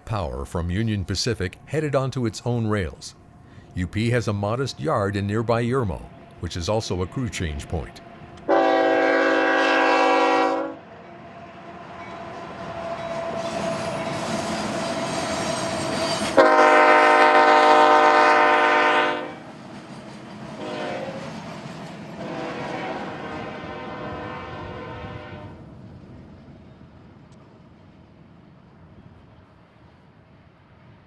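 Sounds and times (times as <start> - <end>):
locomotive engines and wheels: 0.0 - 8.7, 10.8 - 17.0, 19.4 - 23.1
locomotive air horn blasts: 8.5 - 10.8, 16.3 - 19.4, 20.6 - 21.2, 22.2 - 25.6.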